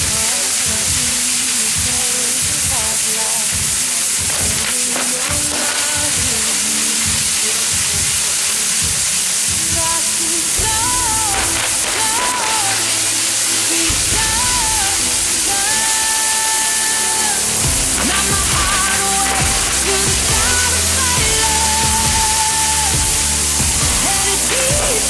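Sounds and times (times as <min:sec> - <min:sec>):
fireworks crackles: 0:00.0 - 0:25.0
fireworks hissing spray: 0:00.0 - 0:25.0.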